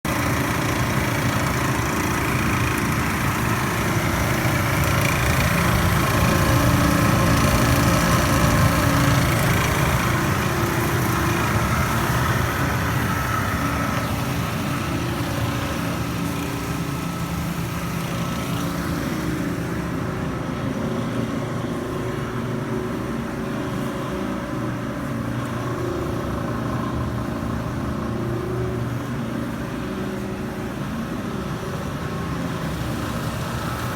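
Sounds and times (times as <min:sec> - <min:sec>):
clothes dryer grinding and rattling: 0:00.0 - 0:33.9.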